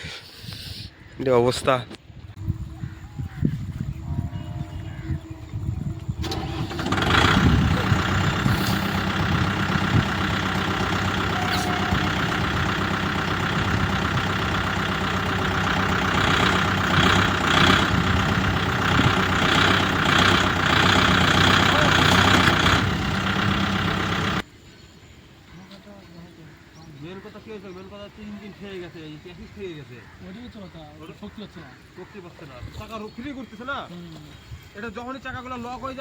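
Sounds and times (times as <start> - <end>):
tractor diesel engine running: 2.4 - 24.5.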